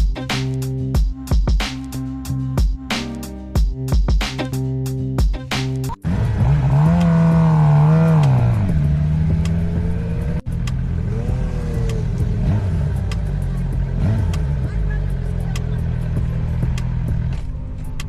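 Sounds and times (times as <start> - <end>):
motorcycle engine revving: 5.9 - 18.0.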